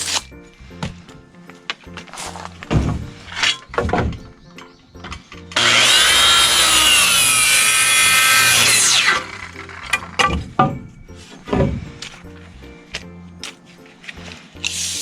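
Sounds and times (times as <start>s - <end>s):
wood knocking and scraping: 0.6s - 5.6s, 9.4s - 14.6s
circular saw cutting wood: 5.6s - 10.1s.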